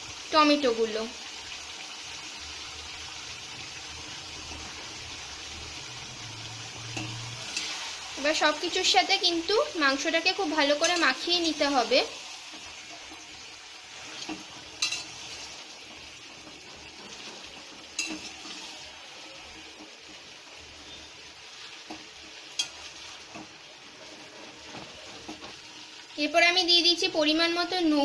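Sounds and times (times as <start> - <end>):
food sizzling in oil: 0.0 - 28.0
metal spatula scraping a pan: 6.5 - 25.7
spatula clinking on pan: 14.2 - 15.2, 17.9 - 18.4, 21.9 - 22.8.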